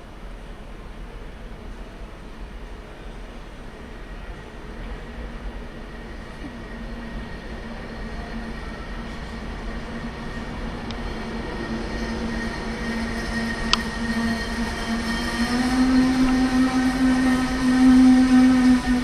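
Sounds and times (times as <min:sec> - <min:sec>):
train droning: 0:00.0 - 0:19.0.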